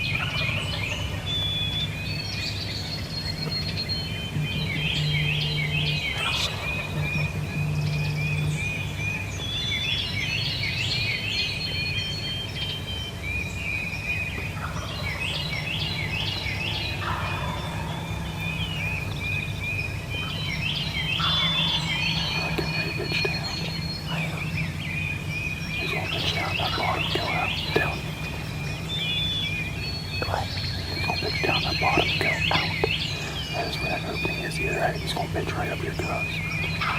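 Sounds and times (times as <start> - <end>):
songbirds singing and chirping: 0.0 - 36.9
steady low hum: 0.0 - 36.9
turkeys gobbling: 17.0 - 18.1.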